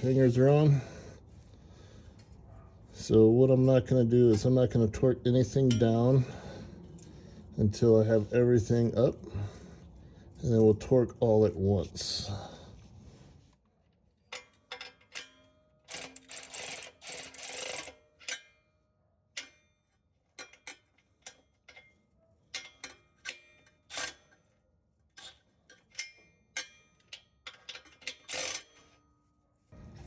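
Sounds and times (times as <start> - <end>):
ratchet clicking: 14.7 - 18.5, 25.2 - 28.9
metallic tool clicks and clinks: 22.5 - 24.3, 25.2 - 29.0.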